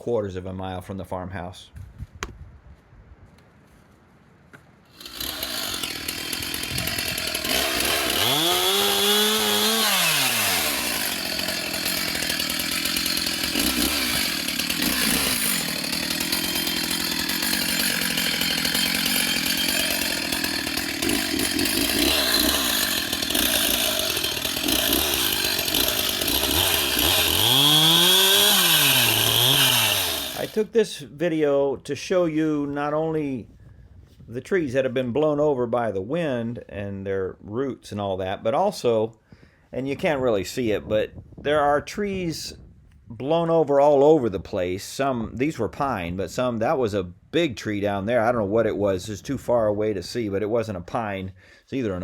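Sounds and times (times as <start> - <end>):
chainsaw revving and running: 4.9 - 30.6.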